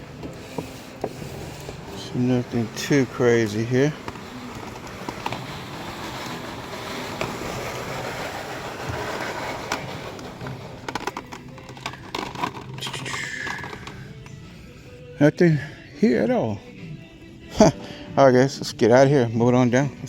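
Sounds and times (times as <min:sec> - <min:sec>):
scraping and rustling: 0:00.0 - 0:14.2.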